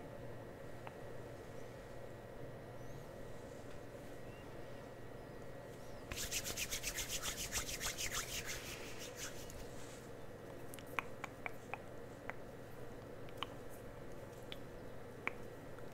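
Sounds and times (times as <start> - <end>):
faint steady hum: 0.0 - 15.9
scratchy rubbing strokes: 6.1 - 10.0.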